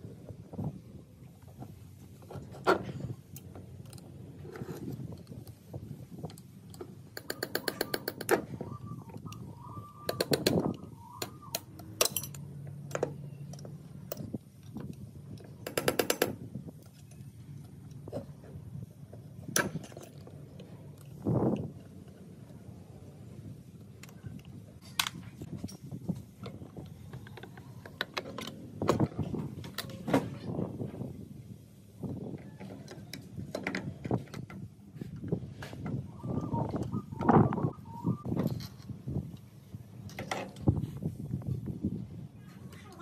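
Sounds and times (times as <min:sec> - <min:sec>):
tools clicking and knocking on metal: 0:06.3 - 0:08.5, 0:10.1 - 0:18.3.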